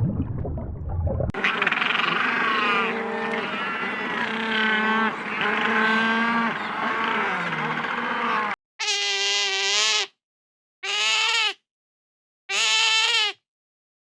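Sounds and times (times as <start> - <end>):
cow mooing: 1.4 - 8.6.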